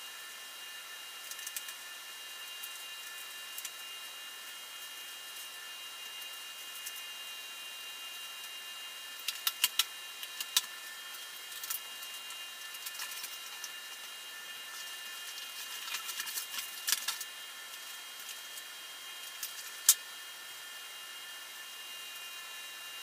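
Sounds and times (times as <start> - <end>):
faint high whine: 0.0 - 23.0
packaging crackling and rustling: 9.2 - 14.0, 14.7 - 20.0.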